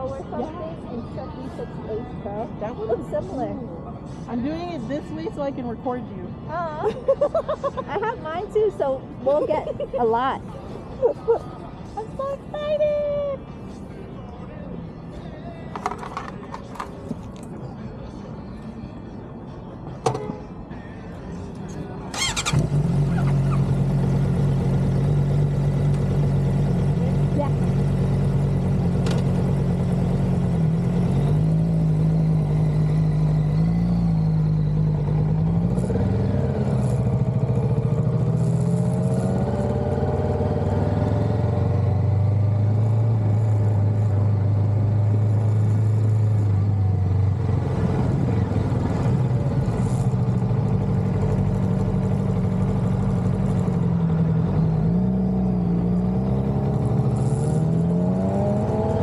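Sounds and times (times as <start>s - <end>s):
motorcycle engine accelerating: 22.1s - 59.0s.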